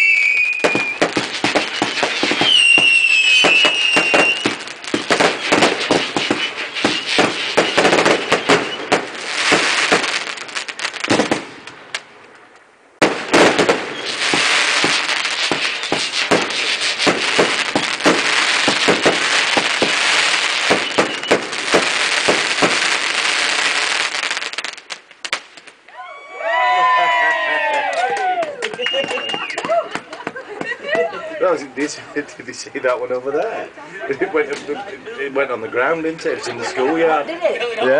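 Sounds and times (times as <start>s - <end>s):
fireworks bangs and crackling: 0.0s - 25.9s, 28.5s - 37.2s.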